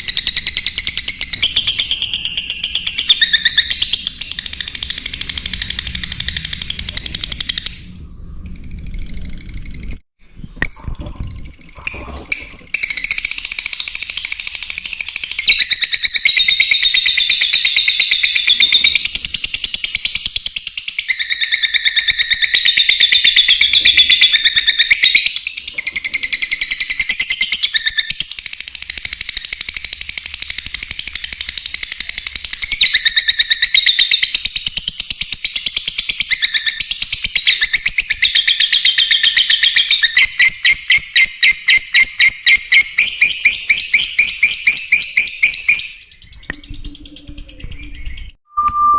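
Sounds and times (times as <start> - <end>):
lovebirds chirping: 37.4 - 48.9.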